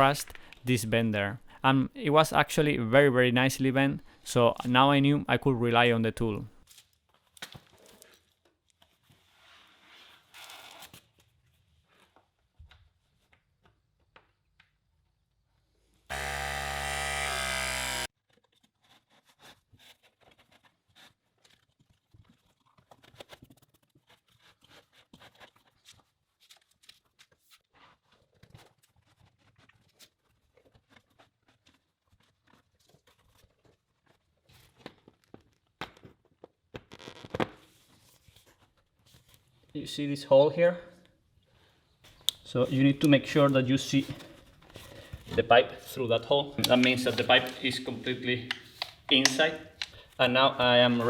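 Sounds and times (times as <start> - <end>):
small power tool motor: 16.1 - 18.1
pipe fittings clicking and scraping: 45.9 - 51.0.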